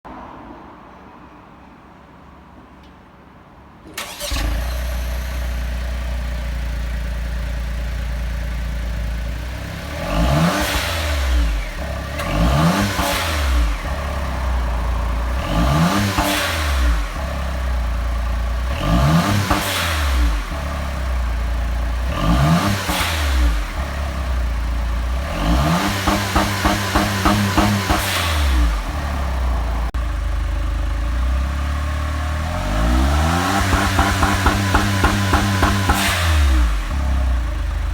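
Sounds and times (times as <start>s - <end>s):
car engine revving: 4.0s - 37.9s
rev limiter stutter: 21.7s - 29.3s, 32.9s - 37.9s.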